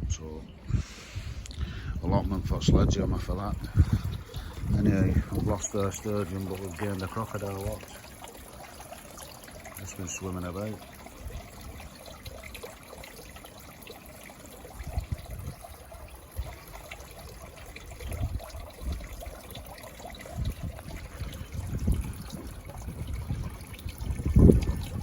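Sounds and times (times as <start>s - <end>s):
low rumbles: 0.0s - 6.3s
waterfall trickling and splashing: 1.6s - 25.0s.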